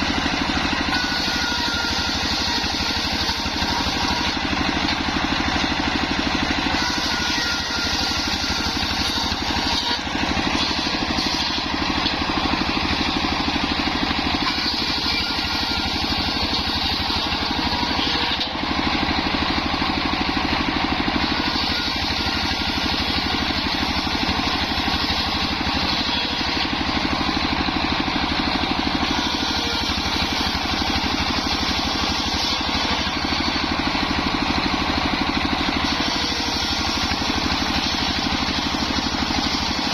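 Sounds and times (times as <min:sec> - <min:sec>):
engine-driven circular saw running: 0:00.0 - 0:39.9.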